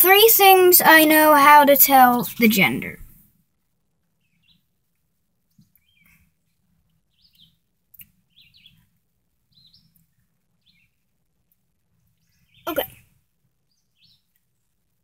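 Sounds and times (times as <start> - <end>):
bird chirping: 5.5 - 8.9, 9.5 - 11.0, 12.0 - 14.4.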